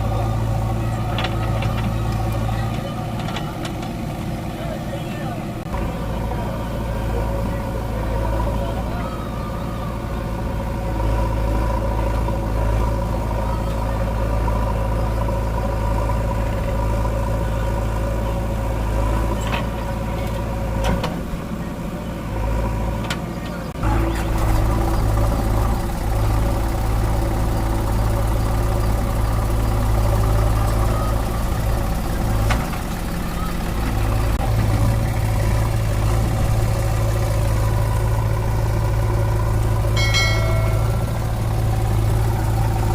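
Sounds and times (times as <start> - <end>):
diesel engine under load: 0.0 - 42.9.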